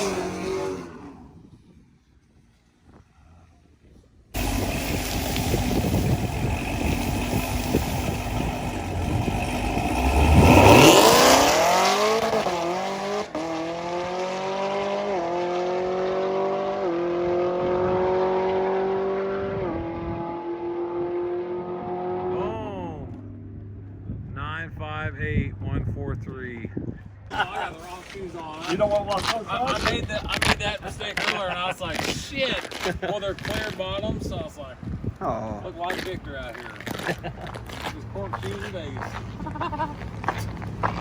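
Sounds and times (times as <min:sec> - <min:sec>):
race car engines at full throttle: 0:00.0 - 0:01.7, 0:04.3 - 0:25.7, 0:35.2 - 0:41.0.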